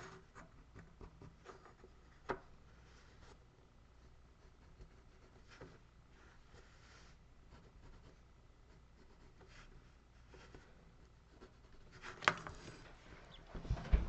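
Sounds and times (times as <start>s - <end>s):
low thumps: 13.3s - 14.0s.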